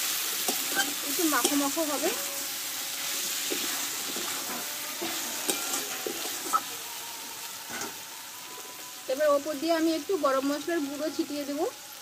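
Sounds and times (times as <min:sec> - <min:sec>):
curry sizzling in a wok: 0:00.0 - 0:12.0
metal spatula scraping a wok: 0:00.1 - 0:06.9, 0:07.6 - 0:08.0.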